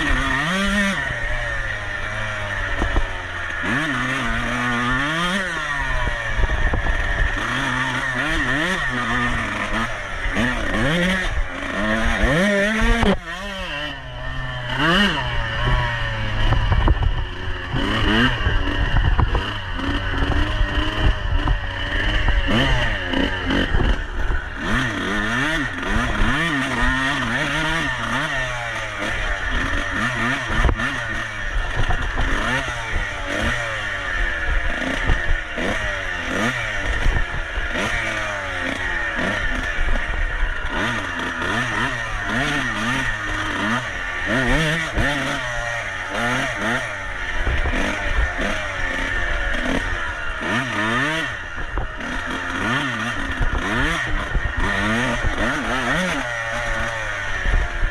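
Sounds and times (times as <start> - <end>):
clatter: 0.0 - 57.9
dirt bike engine revving: 0.0 - 57.9.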